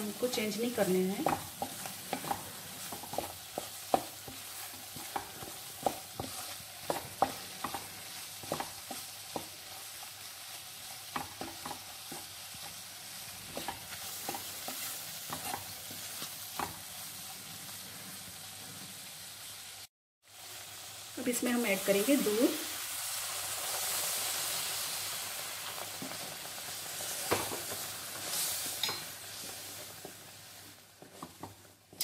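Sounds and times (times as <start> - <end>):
food sizzling in a pan: 0.0 - 32.0
spatula scraping a pan: 0.8 - 10.0, 13.4 - 16.8.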